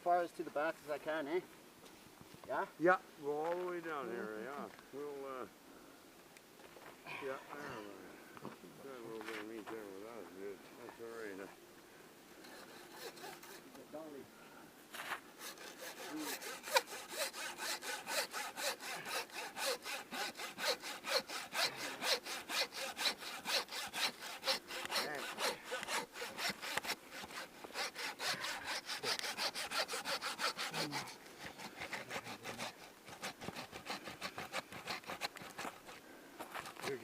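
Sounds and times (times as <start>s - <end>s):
hand saw cutting: 12.4s - 13.8s, 15.0s - 37.0s.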